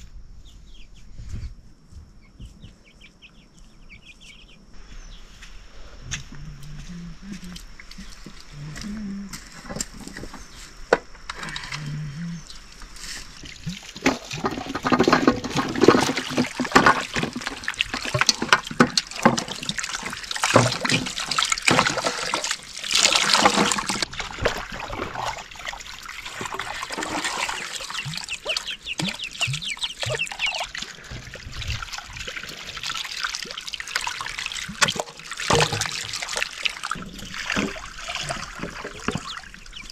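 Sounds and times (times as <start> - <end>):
water splashing and sloshing: 12.5 - 39.9
water trickling: 13.3 - 39.9.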